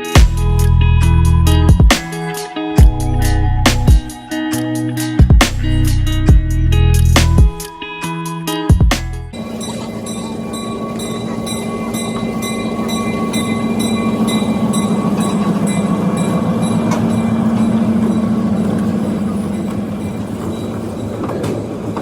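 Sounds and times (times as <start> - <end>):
train wheels rumbling on rails: 9.4 - 22.0.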